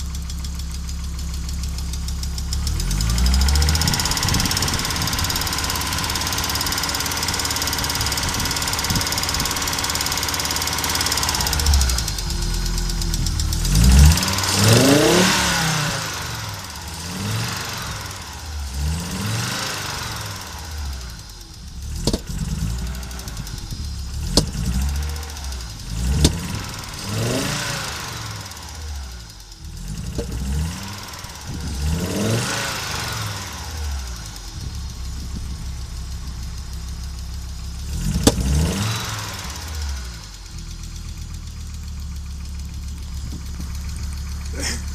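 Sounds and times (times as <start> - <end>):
car engine misfiring and revving: 0.0 - 44.9
sharp engine cracks: 19.5 - 44.9.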